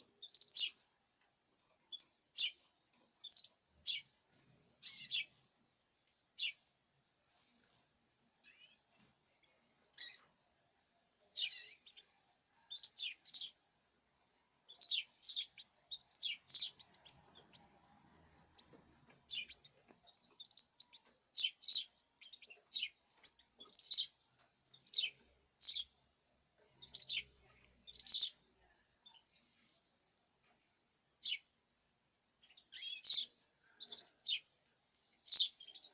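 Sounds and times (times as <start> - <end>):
canaries chirping: 0.0 - 0.8, 1.9 - 5.4, 6.4 - 6.7, 8.4 - 10.5, 11.2 - 13.6, 14.6 - 29.3, 31.2 - 31.5, 32.4 - 35.9.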